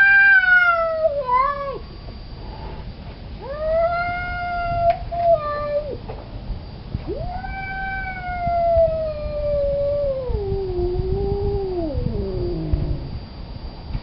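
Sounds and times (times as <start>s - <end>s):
cat yowling: 0.0s - 1.8s, 3.4s - 6.0s, 7.0s - 13.2s.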